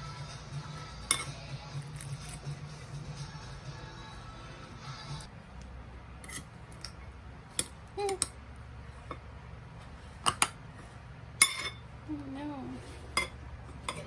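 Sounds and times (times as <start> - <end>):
dishes and cutlery clinking: 1.0 - 2.6, 11.4 - 11.9, 13.0 - 14.0.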